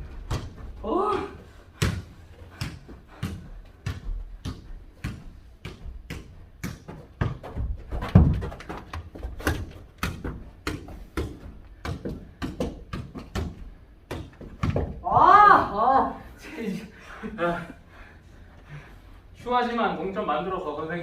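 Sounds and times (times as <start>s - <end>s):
ball kicked and bouncing: 0.0s - 15.3s.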